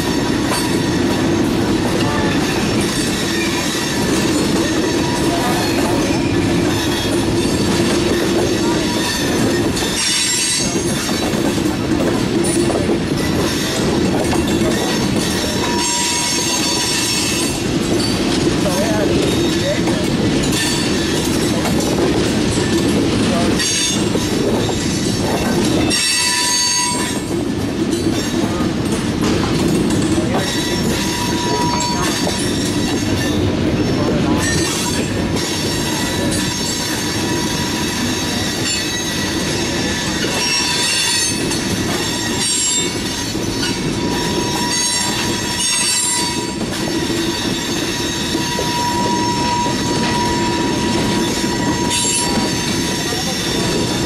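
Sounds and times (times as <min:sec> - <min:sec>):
freight train wheels rumbling: 0:00.0 - 0:54.0
high wheel squeal: 0:02.1 - 0:11.2, 0:14.5 - 0:18.1, 0:23.6 - 0:27.3, 0:30.4 - 0:54.0.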